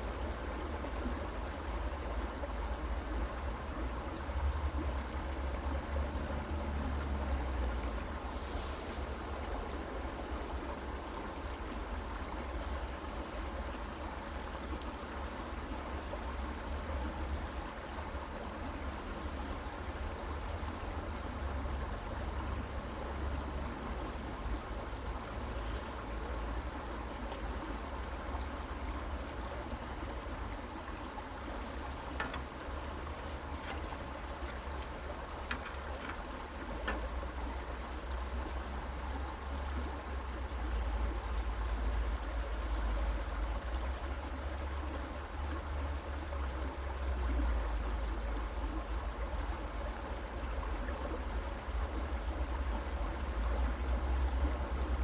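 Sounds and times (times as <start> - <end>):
creek water flowing: 0.0 - 55.0
faint clicks: 31.7 - 37.3.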